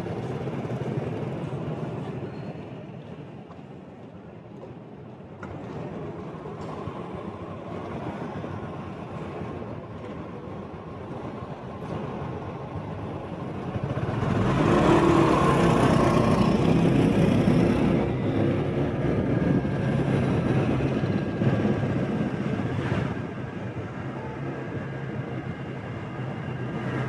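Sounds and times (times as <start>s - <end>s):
road traffic and engines rumbling: 4.6s - 27.0s.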